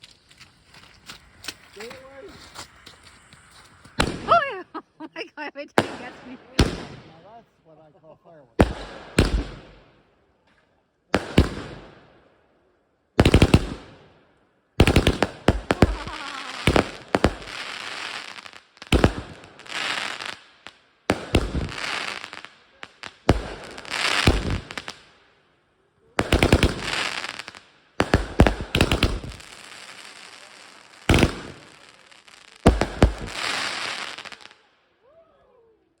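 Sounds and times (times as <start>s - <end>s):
fireworks bangs and crackling: 0.5s - 4.9s, 5.6s - 7.4s, 8.6s - 10.0s, 11.1s - 12.3s, 13.2s - 14.2s, 14.8s - 25.2s, 26.2s - 34.7s.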